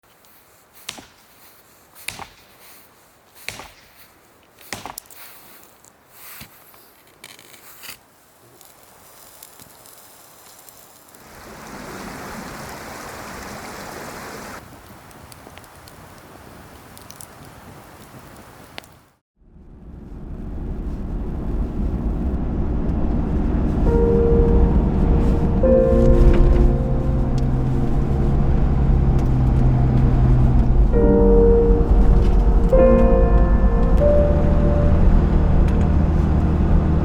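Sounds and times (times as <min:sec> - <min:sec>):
sharp knocks: 0:03.5 - 0:03.9
steady rushing noise: 0:19.5 - 0:37.0.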